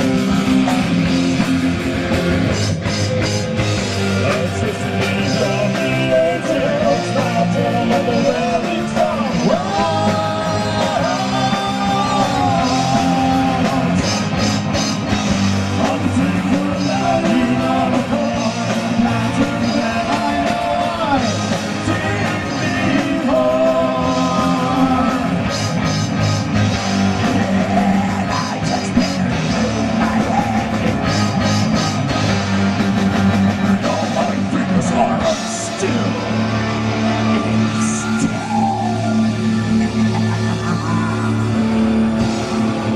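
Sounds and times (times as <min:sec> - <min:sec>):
distorted guitars: 0:00.0 - 0:42.9
drums: 0:00.0 - 0:42.9
person shouting lead vocal: 0:03.2 - 0:14.3, 0:15.7 - 0:25.5, 0:27.2 - 0:31.9, 0:33.8 - 0:39.5.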